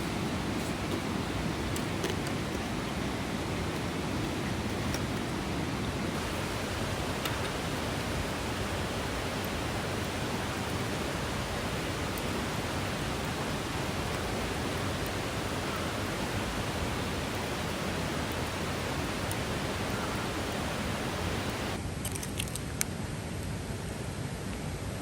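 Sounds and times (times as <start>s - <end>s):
stream water rushing: 0.0s - 21.8s.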